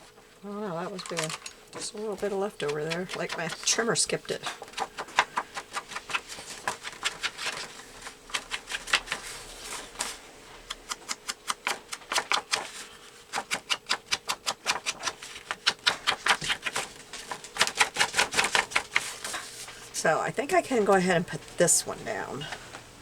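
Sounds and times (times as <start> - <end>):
light taps and clicks on paper: 2.2 - 3.8, 4.6 - 9.4, 10.7 - 19.6.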